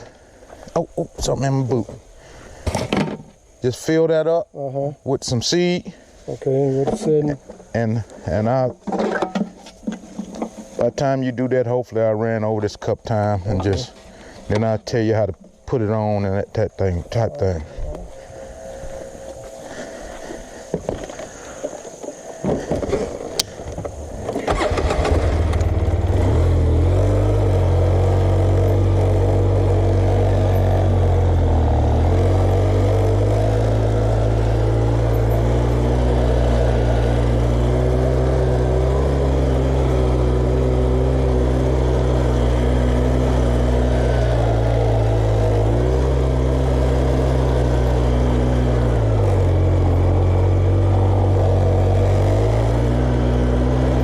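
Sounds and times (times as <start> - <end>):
tractor engine running: 18.1 - 54.0.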